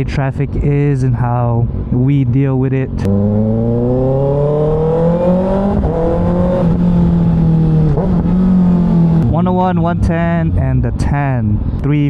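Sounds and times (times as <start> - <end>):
motorcycle engine accelerating: 3.0 - 10.6.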